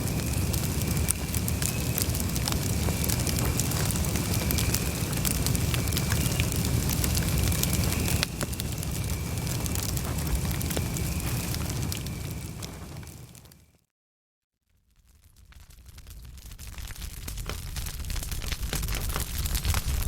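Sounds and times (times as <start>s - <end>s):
low rumble of flames: 0.0s - 13.7s, 14.9s - 20.0s
wood crackling and popping: 0.0s - 13.7s, 14.9s - 20.0s.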